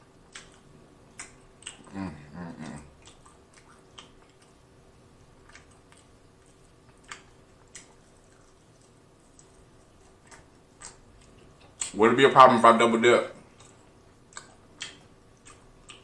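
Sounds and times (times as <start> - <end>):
chewing with mouth clicks: 0.0 - 12.0, 13.4 - 16.0
low voice hum: 1.8 - 3.0.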